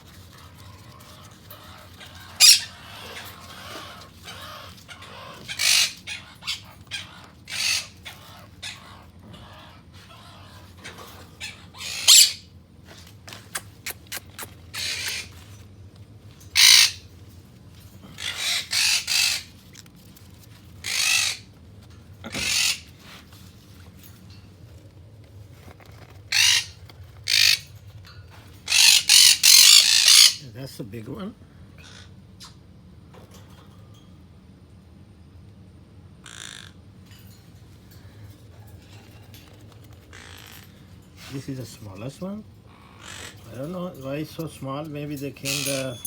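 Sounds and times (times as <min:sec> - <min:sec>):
parrots squawking: 0:00.0 - 0:15.7, 0:16.4 - 0:23.6, 0:25.9 - 0:30.5, 0:31.8 - 0:32.6, 0:36.2 - 0:36.9, 0:38.7 - 0:46.0.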